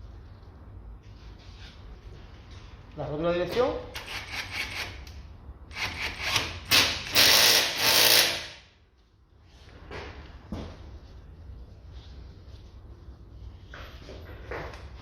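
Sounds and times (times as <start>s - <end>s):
tools working on car part: 3.9s - 8.7s.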